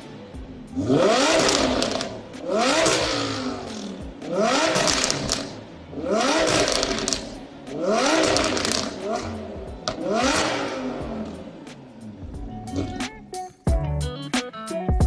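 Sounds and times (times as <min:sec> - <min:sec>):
car engine revving: 0:00.0 - 0:13.4.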